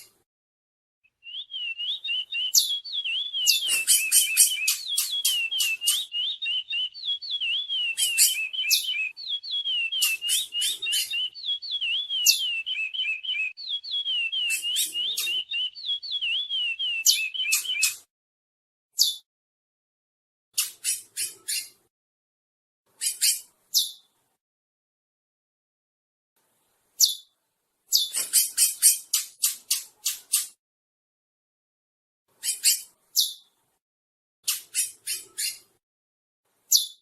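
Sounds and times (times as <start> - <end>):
finch singing whistled warbling: 1.1 - 18.1.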